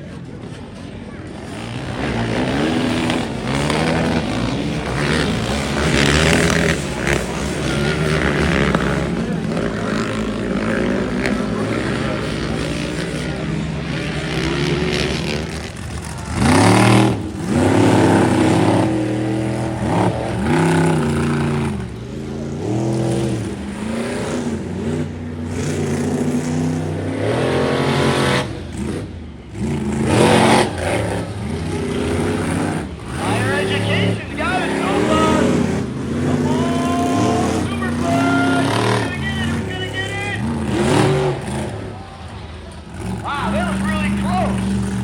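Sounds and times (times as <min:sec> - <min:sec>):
monster truck engine revving: 0:00.0 - 0:45.0.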